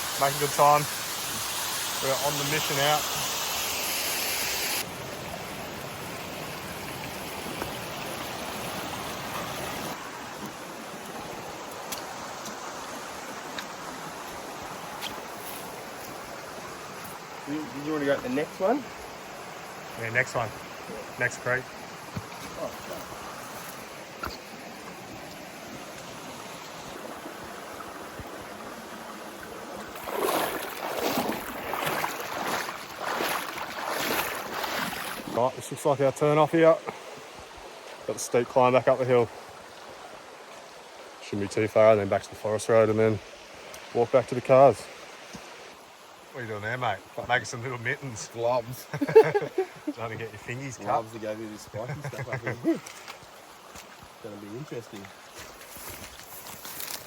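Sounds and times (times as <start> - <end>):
creek water over rocks: 0.0 - 57.0.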